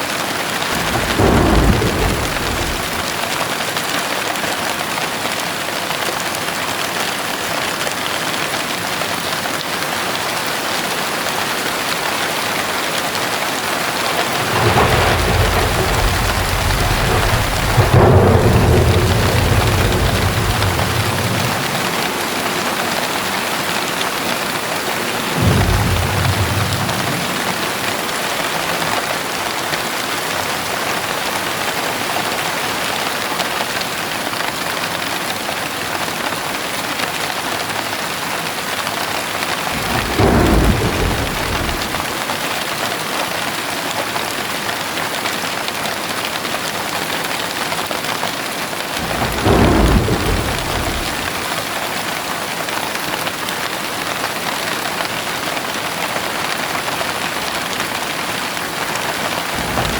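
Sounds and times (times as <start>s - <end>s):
heavy rain pouring: 0.0s - 59.9s
low roll of thunder: 0.7s - 3.4s, 14.0s - 29.1s, 39.5s - 42.4s, 49.0s - 51.9s, 59.4s - 59.9s.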